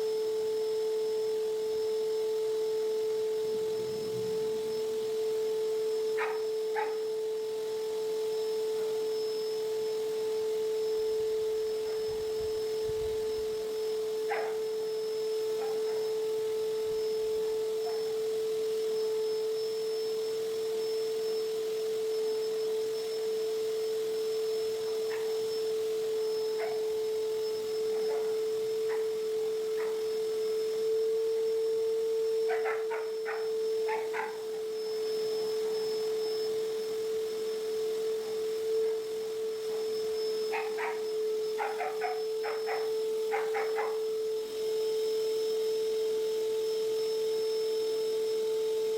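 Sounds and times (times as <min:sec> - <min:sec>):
vacuum cleaner motor whine: 0:00.0 - 0:48.9.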